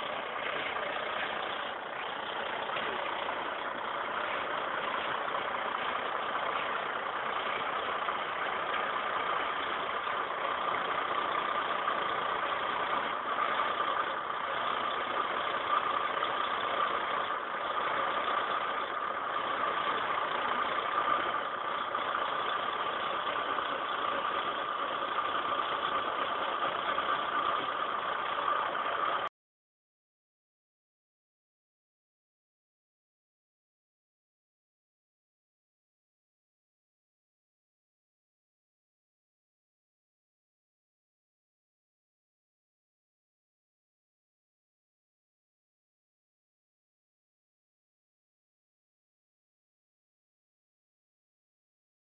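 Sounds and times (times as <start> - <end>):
tractor engine running: 0.0 - 29.3.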